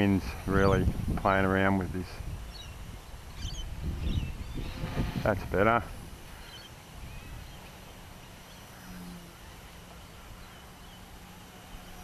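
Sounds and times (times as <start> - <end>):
wind buffeting microphone: 0.0 - 8.4
distant rc helicopter hum: 0.0 - 12.0.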